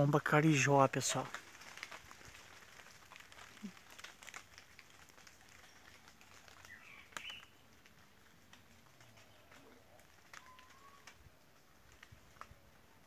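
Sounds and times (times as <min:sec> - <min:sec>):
high bird chirp: 0:06.7 - 0:07.6.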